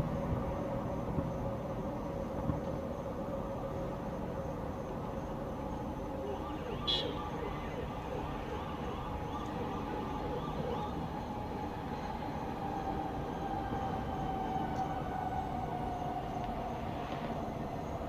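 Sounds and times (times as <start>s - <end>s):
distant traffic rumbling: 5.7s - 18.0s.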